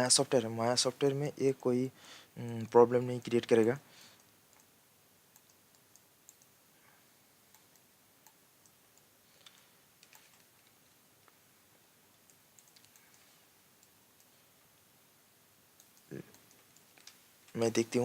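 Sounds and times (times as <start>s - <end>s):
faint computer mouse clicks: 4.2s - 4.7s, 5.3s - 6.5s, 7.5s - 11.4s, 12.2s - 14.3s.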